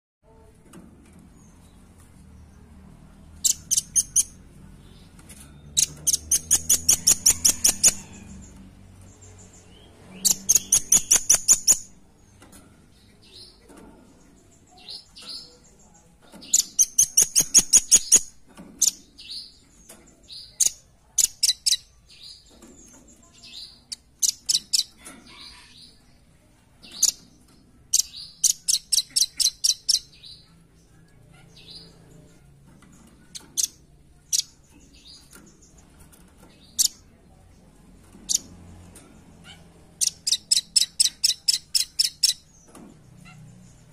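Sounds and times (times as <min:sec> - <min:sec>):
bird calling in rapid trills: 0:10.2 - 0:11.9.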